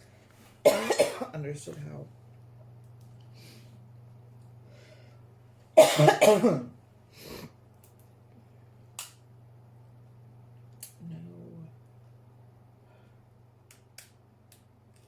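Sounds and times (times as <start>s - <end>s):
steady low hum: 0.0s - 15.0s
woman coughing: 0.7s - 1.3s, 5.8s - 6.7s.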